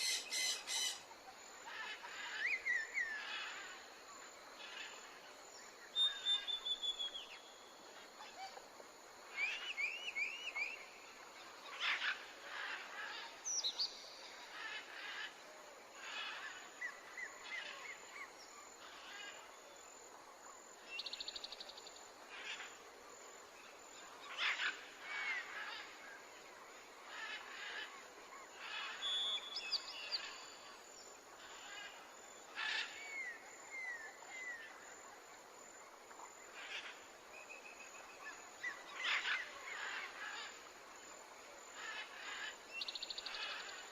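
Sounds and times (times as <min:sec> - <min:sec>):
birds chirping and trilling: 0:00.0 - 0:01.1, 0:36.5 - 0:40.5
faint steady hiss: 0:00.0 - 0:43.9.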